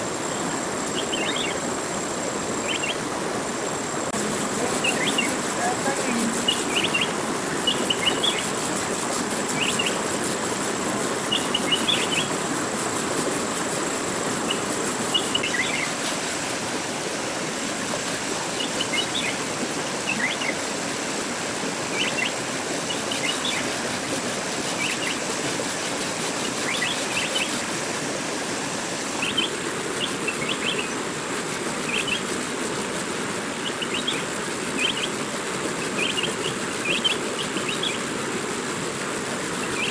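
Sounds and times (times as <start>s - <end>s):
small bird chirping: 0.3s - 1.7s, 4.6s - 8.6s, 9.5s - 10.0s, 11.2s - 12.4s, 14.5s - 15.9s, 33.6s - 35.1s.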